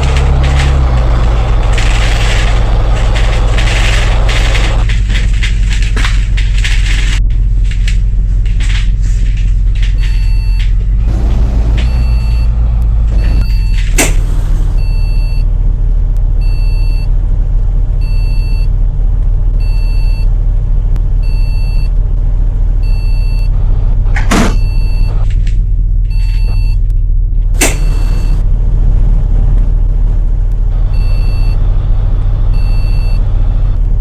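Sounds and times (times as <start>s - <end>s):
bus engine running: 0.0s - 34.0s
short beep: 24.4s - 25.2s, 26.1s - 26.8s, 30.9s - 31.6s.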